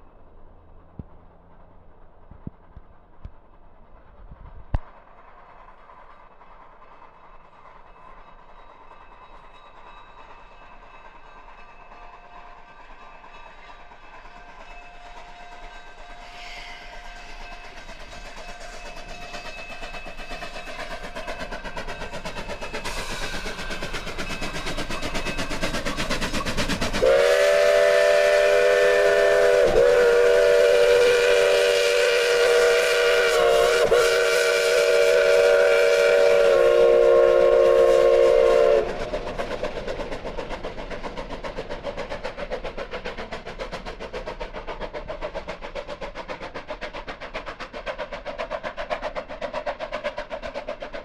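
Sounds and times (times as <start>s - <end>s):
train running by rhythmically: 0.0s - 51.0s
steam locomotive chime whistle: 7.8s - 39.3s.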